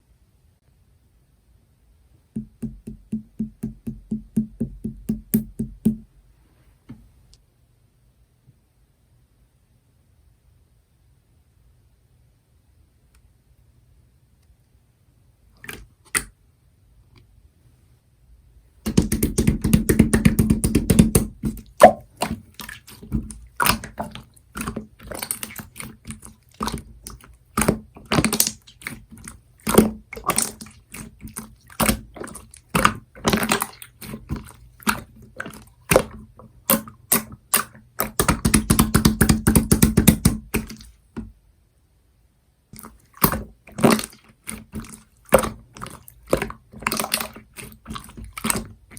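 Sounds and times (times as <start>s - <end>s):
slime squished by hand: 18.9s - 40.9s, 42.8s - 48.9s.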